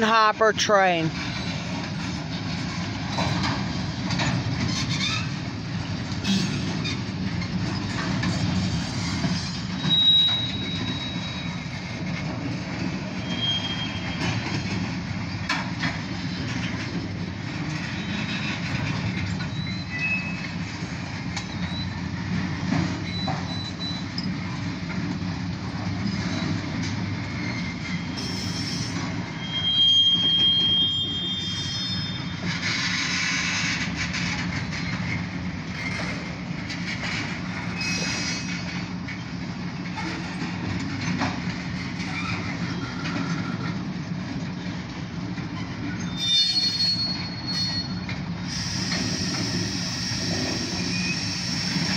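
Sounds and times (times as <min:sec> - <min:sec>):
wheels rumbling on rail: 0:00.0 - 0:51.9
high wheel squeals: 0:08.7 - 0:11.8, 0:13.2 - 0:14.7, 0:18.0 - 0:20.6, 0:23.0 - 0:24.4, 0:27.2 - 0:33.8, 0:37.7 - 0:38.8, 0:42.0 - 0:43.8, 0:45.6 - 0:51.9.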